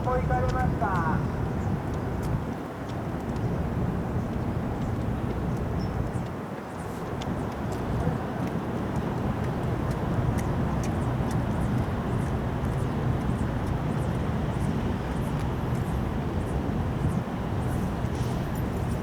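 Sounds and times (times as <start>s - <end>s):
low engine rumble: 0.0s - 1.6s.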